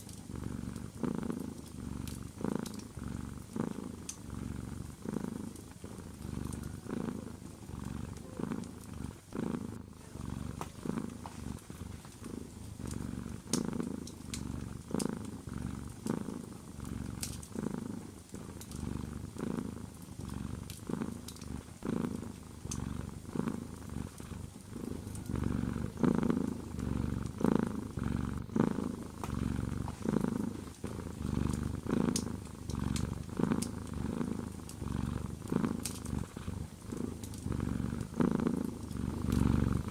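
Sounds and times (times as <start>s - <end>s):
cat purring: 0.0s - 39.9s
wood fire crackling: 10.5s - 39.9s.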